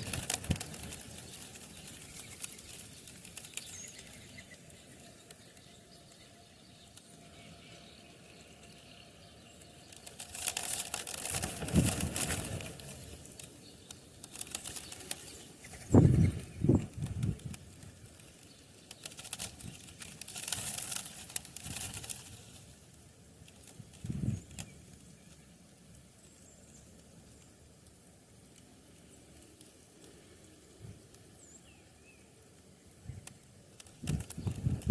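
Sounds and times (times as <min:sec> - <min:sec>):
bird wings fluttering: 0:00.0 - 0:06.2, 0:09.8 - 0:22.8, 0:23.4 - 0:25.0, 0:33.8 - 0:34.9.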